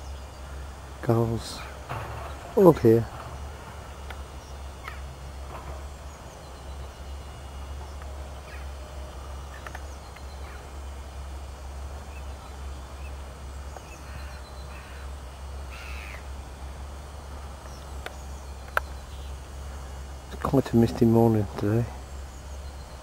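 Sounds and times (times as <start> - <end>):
bird calls: 0.0 - 23.0.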